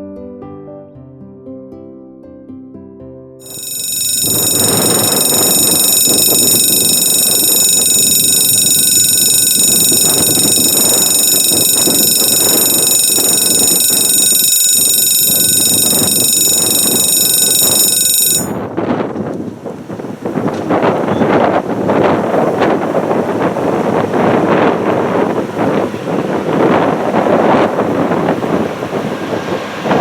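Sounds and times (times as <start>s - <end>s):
electric alarm bell ringing: 3.4s - 18.6s.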